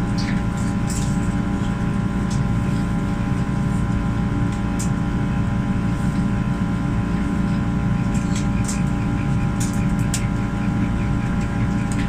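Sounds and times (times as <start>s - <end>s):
airplane cabin ventilation rush: 0.0s - 8.4s
cabin rumble and hum: 0.0s - 12.0s.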